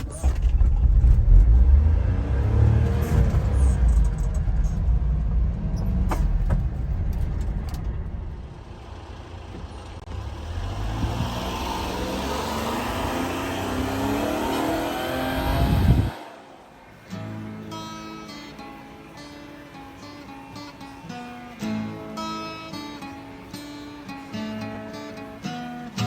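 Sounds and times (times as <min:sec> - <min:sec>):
small truck engine running: 0:00.0 - 0:26.0
sharp engine knocks: 0:05.9 - 0:08.6.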